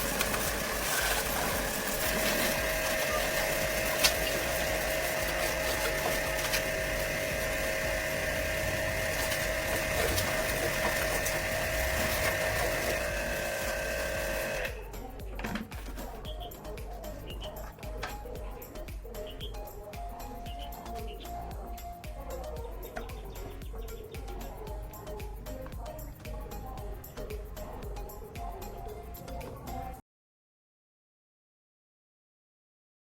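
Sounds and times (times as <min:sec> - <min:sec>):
small motor whining: 0:00.0 - 0:14.9.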